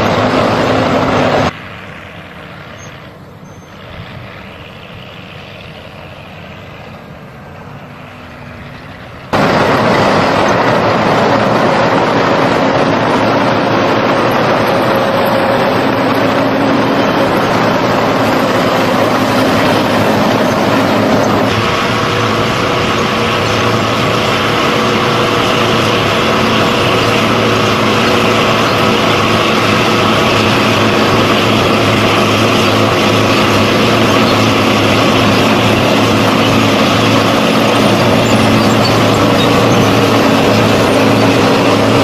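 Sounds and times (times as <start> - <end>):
tractor diesel engine under load: 0.0 - 42.0.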